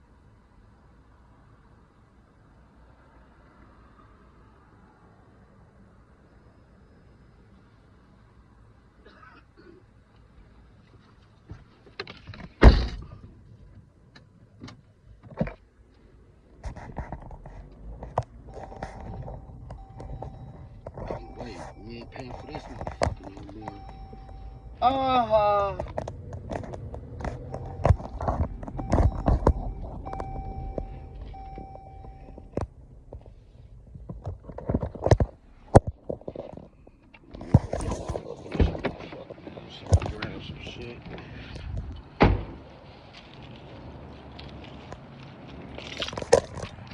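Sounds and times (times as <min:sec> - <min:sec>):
knocks and clunks: 0:11.5 - 0:13.4, 0:16.7 - 0:24.8, 0:25.7 - 0:42.7
rustling and scraping: 0:14.7 - 0:24.8, 0:25.8 - 0:46.9
heavy thunk: 0:42.2 - 0:42.6.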